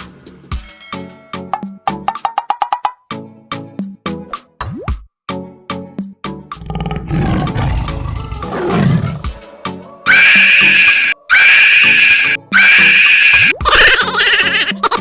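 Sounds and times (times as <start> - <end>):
percussive music: 0.5 - 5.1
tiger roar: 6.6 - 9.4.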